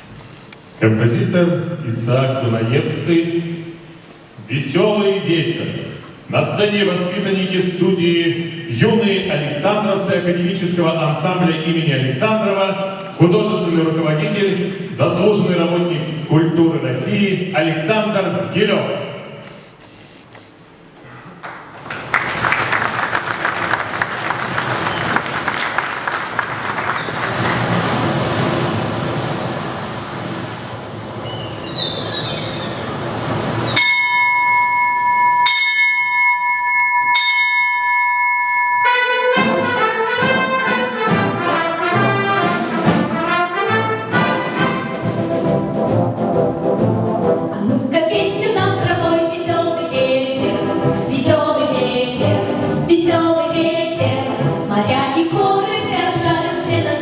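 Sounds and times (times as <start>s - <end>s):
military wind orchestra playing: 22.2s - 34.0s, 38.8s - 47.6s
ringing bell tones: 33.7s - 39.3s.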